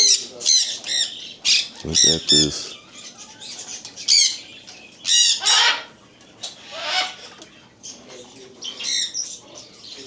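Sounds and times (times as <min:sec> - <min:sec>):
parrots squawking: 0:00.0 - 0:07.4
faint bird chatter: 0:00.0 - 0:10.0.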